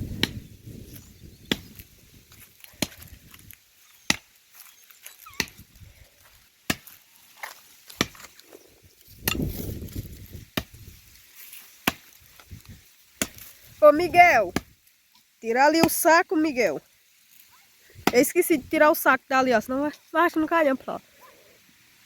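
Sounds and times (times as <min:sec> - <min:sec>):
axe chopping tree trunk: 0:00.2 - 0:00.4, 0:01.4 - 0:01.8, 0:02.6 - 0:04.4, 0:05.3 - 0:05.6, 0:06.6 - 0:08.4, 0:09.2 - 0:10.9, 0:11.8 - 0:12.4, 0:13.2 - 0:13.5, 0:14.5 - 0:14.8.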